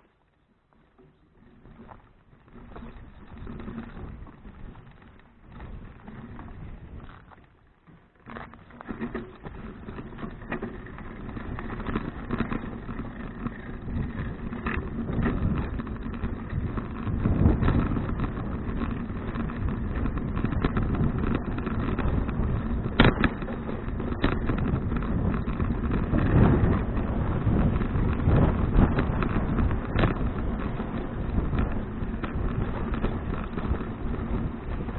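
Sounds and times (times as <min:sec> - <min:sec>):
bicycle road noise: 0:00.0 - 0:34.9
wind rushing over microphone: 0:09.0 - 0:34.9.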